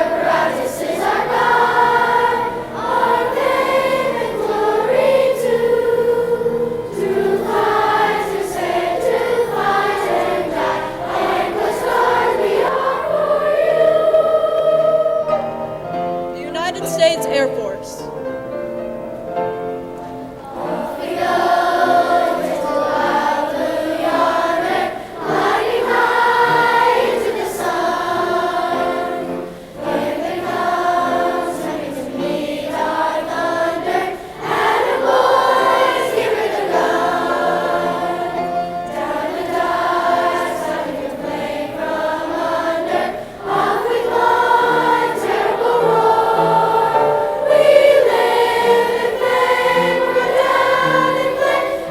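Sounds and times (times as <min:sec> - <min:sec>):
choir singing: 0:00.0 - 0:18.4, 0:20.4 - 0:51.9.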